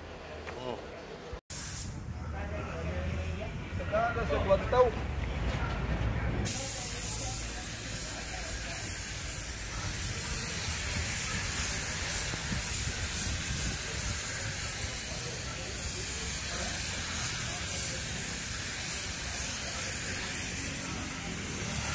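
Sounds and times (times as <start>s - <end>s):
paint spray gun hissing: 1.5s - 2.0s, 6.5s - 21.9s.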